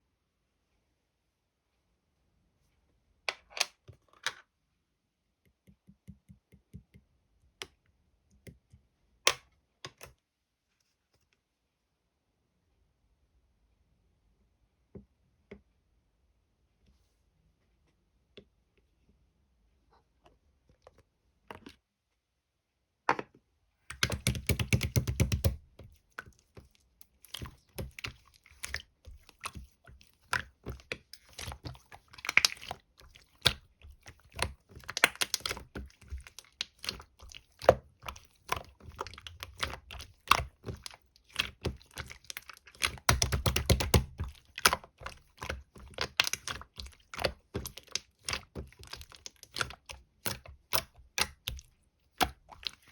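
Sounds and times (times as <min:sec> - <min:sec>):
slime being squished: 0:23.9 - 0:52.9.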